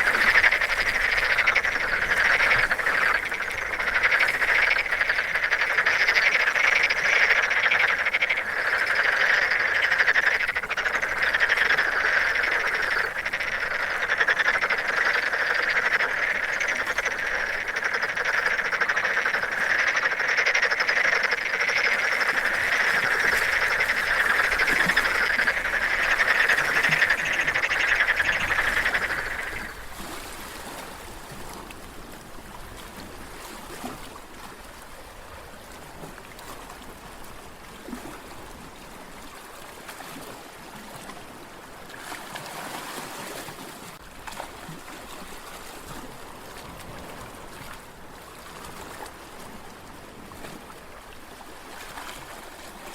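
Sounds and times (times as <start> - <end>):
frogs chorus: 0.0 - 30.1.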